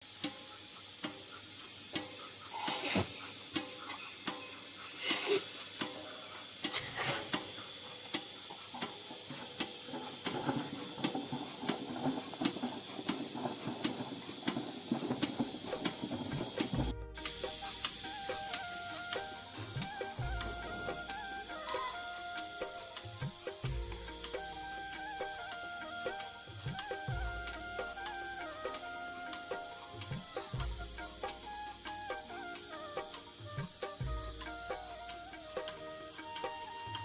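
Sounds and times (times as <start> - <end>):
milking machine hiss: 0.0 - 37.0
milking machine pulsator clicks: 0.1 - 17.0.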